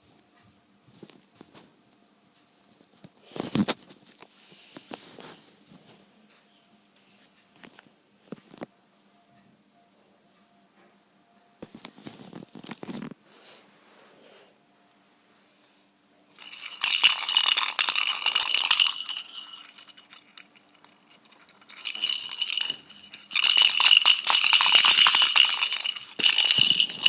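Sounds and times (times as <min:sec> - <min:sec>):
small object rattling and jingling: 0:16.4 - 0:27.0.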